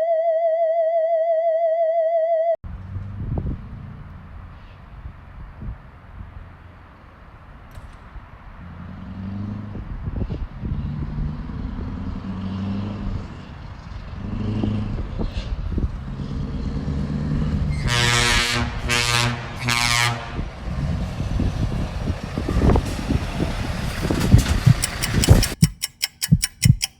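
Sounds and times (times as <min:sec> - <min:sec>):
truck air horn: 0:17.7 - 0:20.5
diesel engine running: 0:20.4 - 0:25.7
fast sharp clicks: 0:24.2 - 0:26.9.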